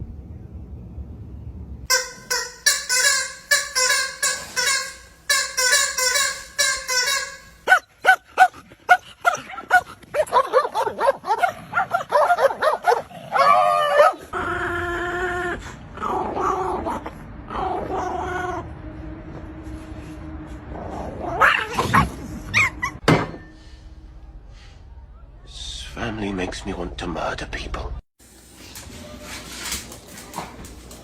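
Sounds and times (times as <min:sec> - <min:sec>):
dog whining: 0:01.9 - 0:07.7
dog yipping: 0:01.9 - 0:08.2, 0:21.4 - 0:23.0.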